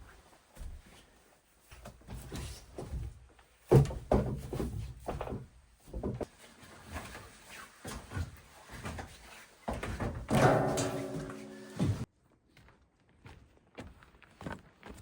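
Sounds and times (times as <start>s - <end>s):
knocks and thuds: 10.3s - 12.0s.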